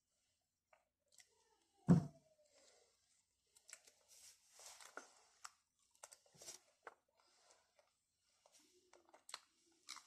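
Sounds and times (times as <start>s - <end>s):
person chewing salad leaves: 8.9s - 10.0s.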